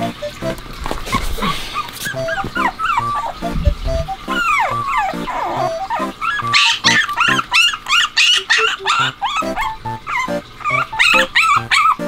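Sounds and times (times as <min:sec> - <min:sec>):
background music with steady beat: 0:00.0 - 0:00.7, 0:02.2 - 0:06.2
puppy yelping and whining: 0:01.0 - 0:12.0.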